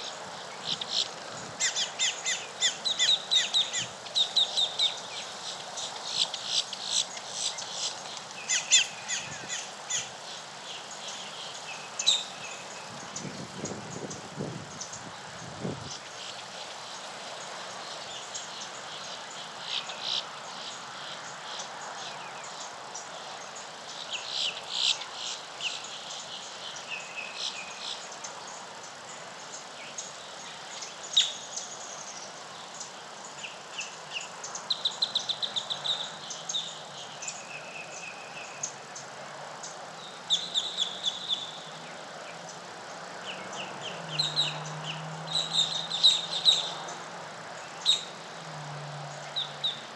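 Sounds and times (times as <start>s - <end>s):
birds chirping and calling: 0.0s - 15.1s, 40.0s - 42.6s, 43.2s - 47.0s, 47.6s - 48.2s.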